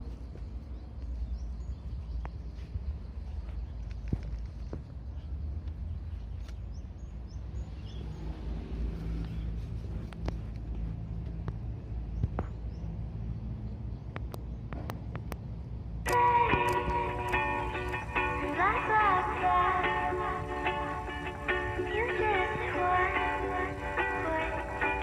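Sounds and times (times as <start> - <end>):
faint distant traffic hum: 0.0 - 25.0
low outdoor rumble: 0.0 - 25.0
sharp clicks: 16.1 - 19.1.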